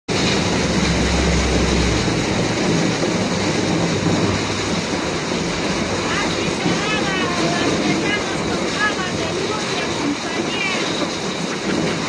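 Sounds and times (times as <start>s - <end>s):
low rumble: 0.1s - 9.2s
heavy rain: 0.1s - 12.0s.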